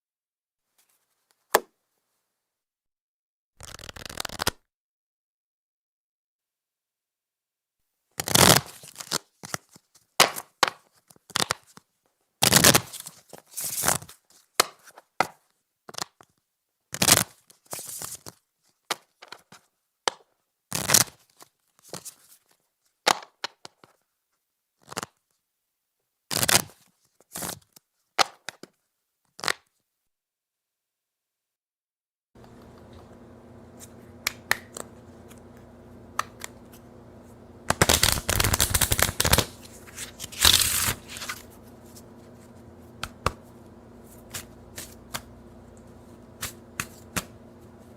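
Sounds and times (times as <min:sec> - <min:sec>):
playing cards shuffling: 0:03.6 - 0:04.6, 0:08.2 - 0:11.8, 0:32.4 - 0:47.9.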